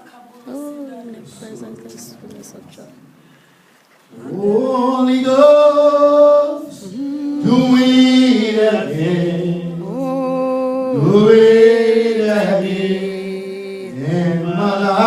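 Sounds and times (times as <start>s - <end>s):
voices singing a worship song: 4.1s - 15.0s.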